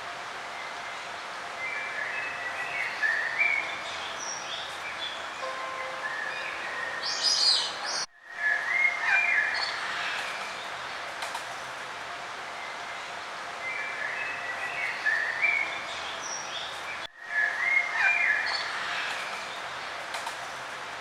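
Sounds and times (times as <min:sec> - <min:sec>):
outdoor ambient hiss: 0:00.0 - 0:21.0
birds chirping: 0:01.7 - 0:08.1.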